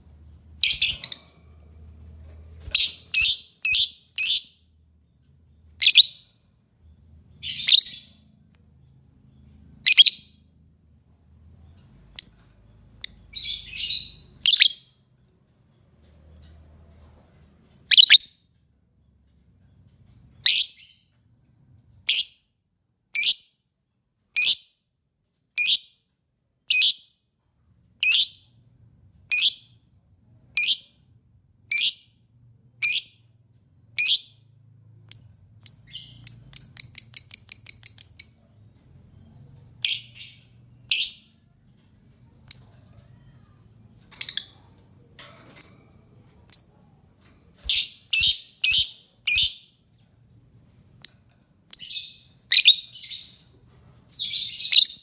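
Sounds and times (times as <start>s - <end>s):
shrill bird chirps: 0.6s - 1.2s, 2.6s - 4.8s, 5.7s - 6.4s, 7.3s - 10.5s, 11.7s - 15.0s, 17.8s - 18.4s, 20.4s - 21.2s, 23.1s - 23.6s, 24.4s - 24.8s, 25.6s - 26.0s, 26.7s - 27.2s, 28.0s - 28.6s, 29.3s - 29.8s, 30.6s - 31.0s, 31.7s - 32.2s, 32.8s - 33.3s, 34.0s - 34.5s, 35.1s - 41.4s, 42.3s - 44.7s, 47.6s - 49.8s, 51.0s - 53.5s, 54.1s - 55.0s.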